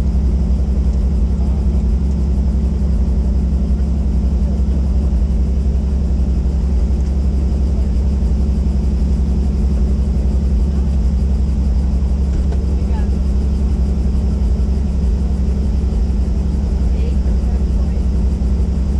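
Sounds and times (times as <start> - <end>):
helicopter engine and rotor drone: 0.0 - 18.9.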